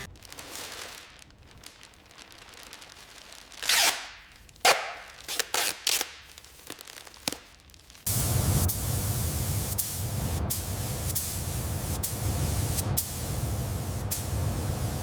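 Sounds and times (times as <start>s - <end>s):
short hissing bursts: 8.1s - 15.0s.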